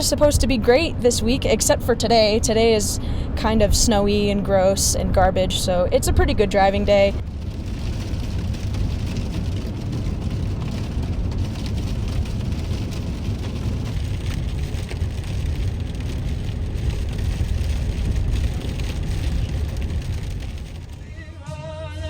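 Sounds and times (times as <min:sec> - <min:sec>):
road and engine rumble: 0:00.0 - 0:22.0.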